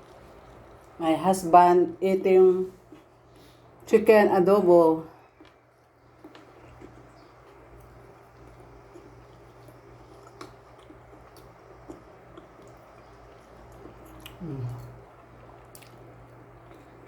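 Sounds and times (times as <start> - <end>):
steady low hum: 0.0 - 17.0
wet chewing: 5.2 - 17.0
person humming: 14.4 - 15.0.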